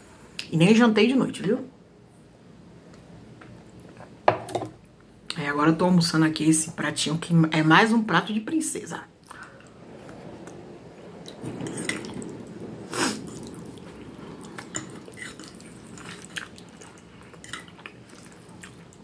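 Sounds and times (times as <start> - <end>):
wet chewing mouth sounds: 14.5 - 19.0.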